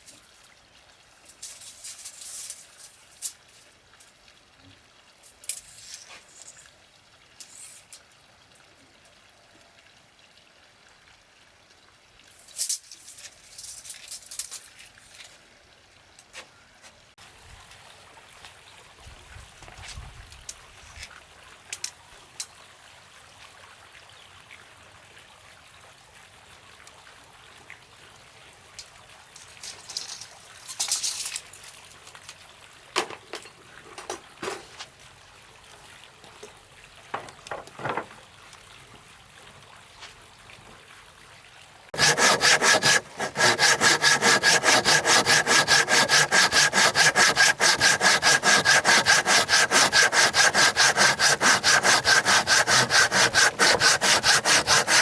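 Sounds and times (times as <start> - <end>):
wood knocks and scrapes: 37.2 - 38.2
hand saw cutting wood: 42.0 - 55.0.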